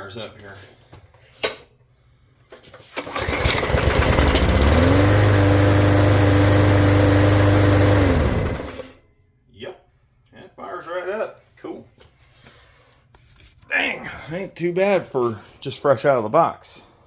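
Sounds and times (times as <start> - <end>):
lawn mower engine starting and running: 2.8 - 9.0.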